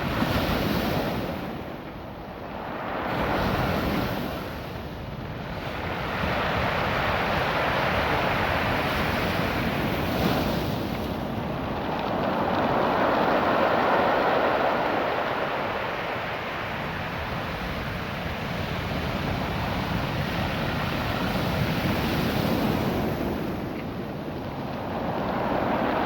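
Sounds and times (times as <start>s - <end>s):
waves rattling through stones: 6.2s - 26.0s.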